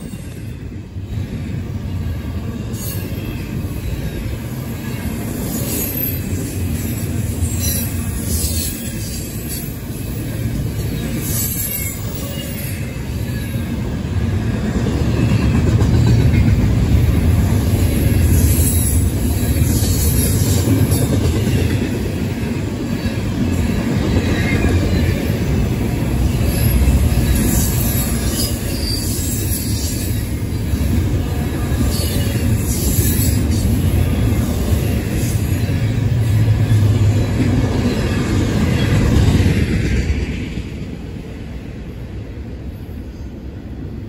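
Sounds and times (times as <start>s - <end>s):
freight train wheels rumbling on rail: 0.0s - 44.0s.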